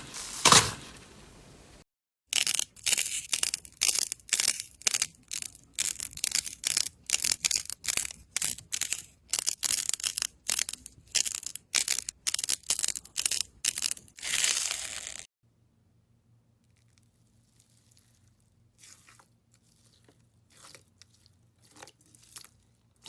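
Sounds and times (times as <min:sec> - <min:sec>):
crunchy slime crackling: 0:02.4 - 0:15.3.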